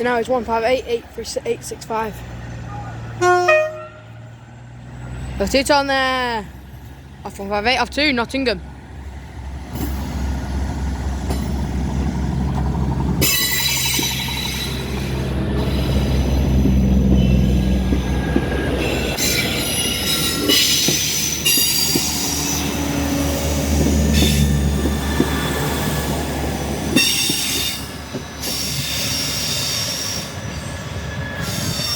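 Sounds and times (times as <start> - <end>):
train engines humming: 0.0 - 31.9
train wheels squealing: 13.2 - 26.1, 27.0 - 31.9.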